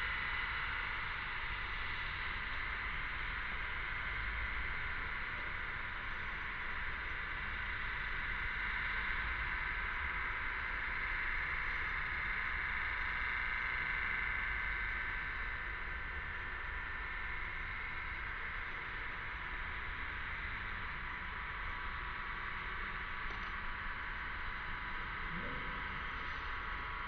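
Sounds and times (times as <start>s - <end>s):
low rumble: 25.2s - 26.8s.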